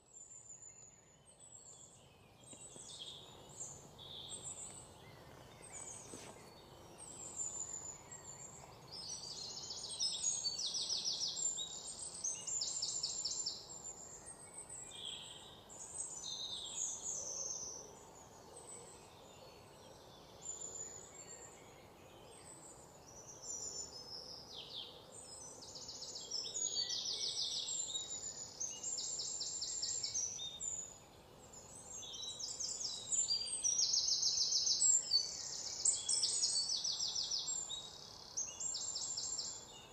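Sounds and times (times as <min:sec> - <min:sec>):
small birds chirping and whistling: 0:20.4 - 0:39.9.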